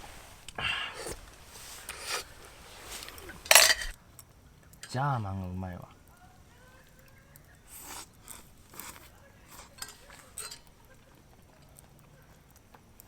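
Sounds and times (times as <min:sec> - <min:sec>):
tableware clinking: 0:01.0 - 0:04.0, 0:08.2 - 0:10.9.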